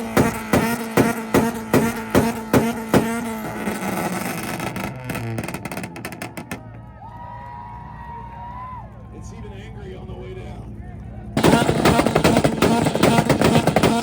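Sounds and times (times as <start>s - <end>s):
engine revs crackling: 0.0s - 6.9s, 11.4s - 14.0s
car engine banging and popping: 0.0s - 7.2s, 11.3s - 14.0s.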